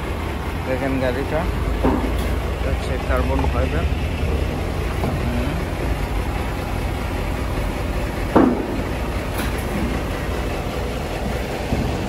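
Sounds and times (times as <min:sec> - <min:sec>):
suv engine rumbling: 0:00.0 - 0:12.0.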